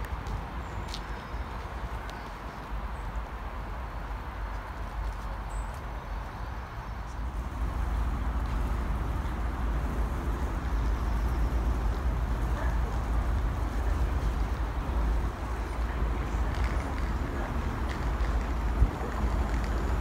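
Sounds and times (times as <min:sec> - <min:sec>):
distant train rumbling: 0:07.1 - 0:20.0
wind buffeting microphone: 0:07.2 - 0:20.0.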